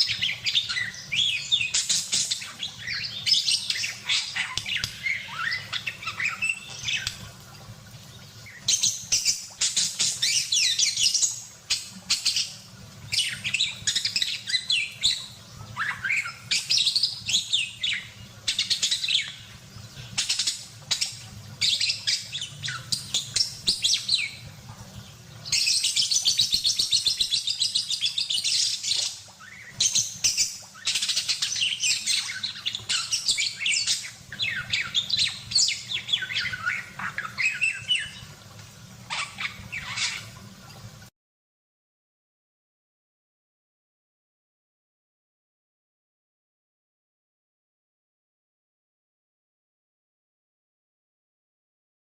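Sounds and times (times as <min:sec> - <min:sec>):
budgerigar chattering and warbling: 0:39.1 - 0:40.4.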